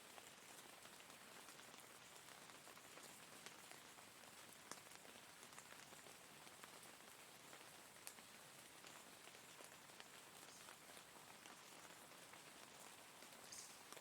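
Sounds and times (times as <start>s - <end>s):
faint rain hiss: 0.0s - 14.0s.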